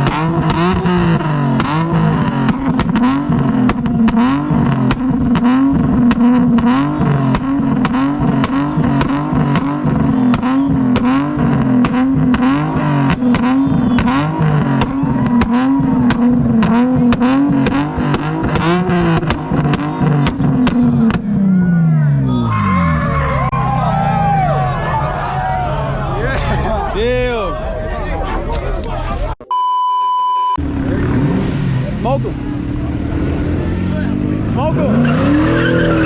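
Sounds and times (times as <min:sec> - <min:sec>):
car engine revving hard: 0:00.0 - 0:21.4, 0:30.6 - 0:36.0
exhaust pops: 0:00.0 - 0:21.5.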